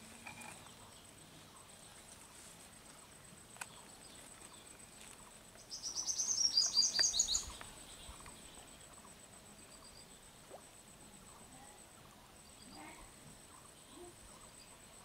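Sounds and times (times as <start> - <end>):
bird calling with high chirps: 5.6 - 8.6.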